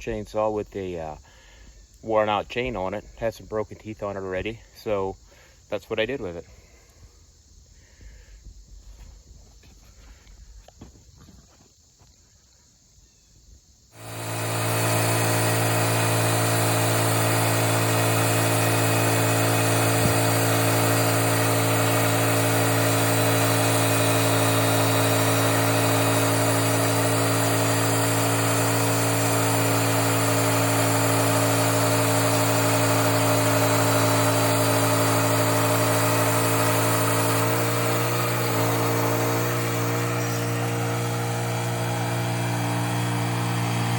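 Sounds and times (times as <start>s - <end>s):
small engine running: 13.9s - 43.9s.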